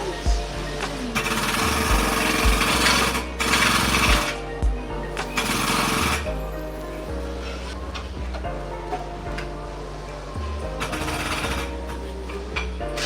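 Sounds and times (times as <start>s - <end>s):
background music with bass beat: 0.0s - 13.0s
power tool rattling: 1.2s - 4.4s.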